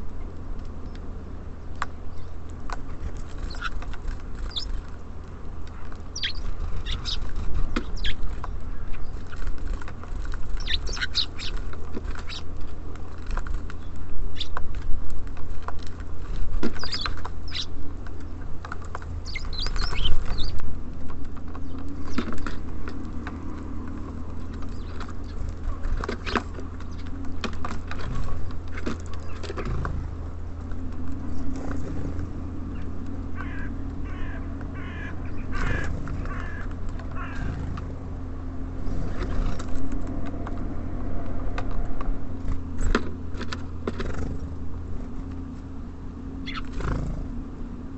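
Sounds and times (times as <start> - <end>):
small songbirds chirping: 0.0 - 14.8, 16.2 - 20.7, 21.3 - 29.8, 31.1 - 37.6, 46.4 - 46.9
steady low hum: 0.0 - 47.9.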